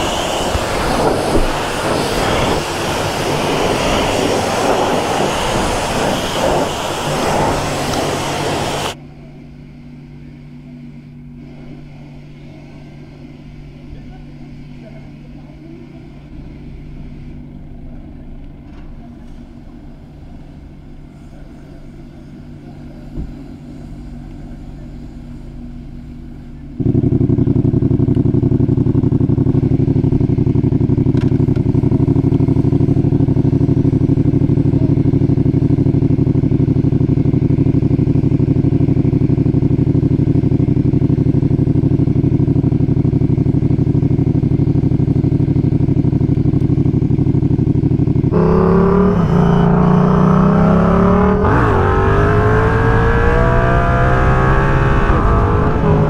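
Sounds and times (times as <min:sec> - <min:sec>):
motorcycle engine revving: 0:00.0 - 0:09.0, 0:25.5 - 0:56.0.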